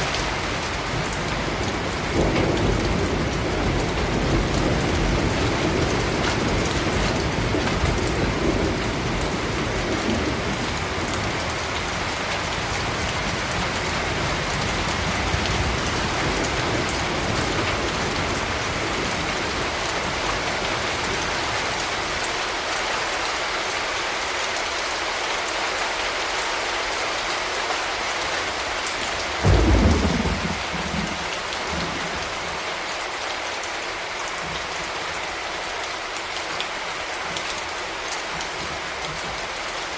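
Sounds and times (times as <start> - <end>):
steady rain falling: 0.0 - 39.9
low rumble of thunder: 0.5 - 21.6, 29.4 - 32.6
loud thunderclap: 29.4 - 32.2.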